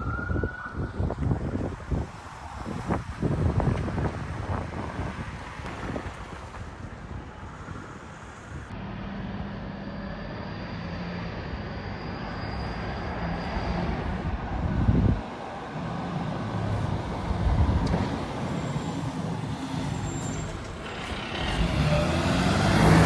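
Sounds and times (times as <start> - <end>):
wind buffeting microphone: 0.0 - 8.8, 13.6 - 23.0
heavy vehicle engine running: 5.7 - 23.0.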